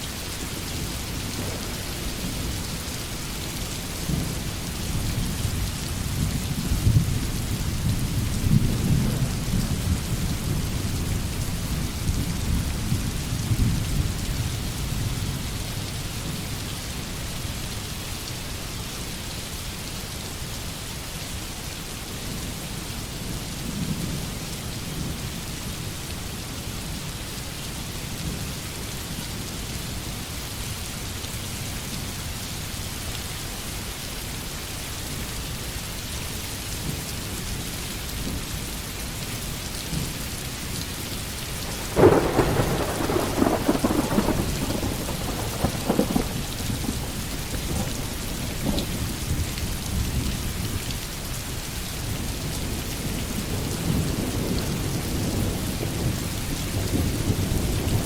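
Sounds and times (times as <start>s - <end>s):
heavy rain falling: 0.0s - 58.0s
thunder crack and rumble: 41.6s - 50.3s.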